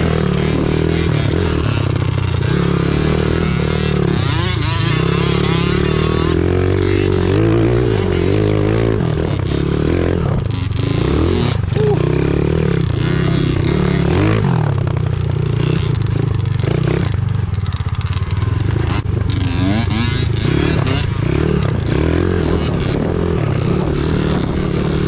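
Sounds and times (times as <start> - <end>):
pit bike engine revving: 0.0 - 25.0.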